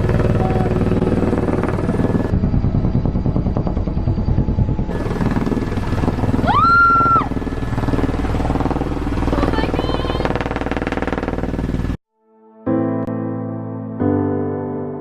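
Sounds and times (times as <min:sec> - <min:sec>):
helicopter rotor chopping: 0:00.0 - 0:12.0.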